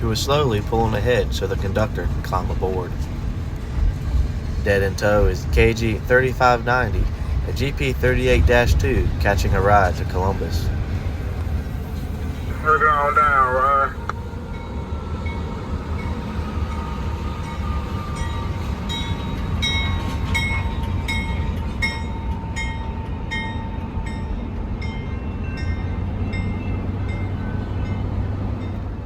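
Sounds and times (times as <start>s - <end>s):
diesel train engine rumble: 0.0s - 29.0s
train bell ringing: 12.6s - 28.8s.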